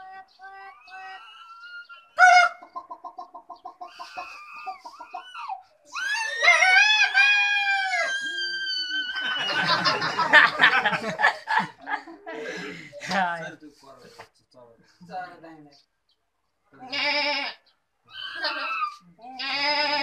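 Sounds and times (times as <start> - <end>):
people laughing: 8.9 - 13.2.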